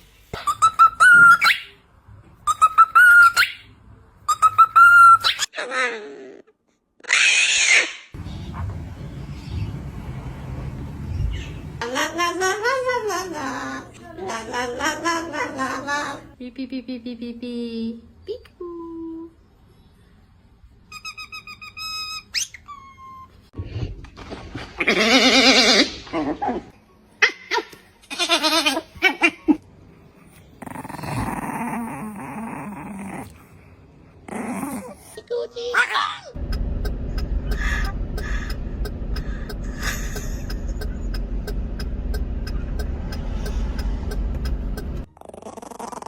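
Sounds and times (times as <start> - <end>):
low vehicle rumble: 8.2 - 12.1, 36.4 - 45.1.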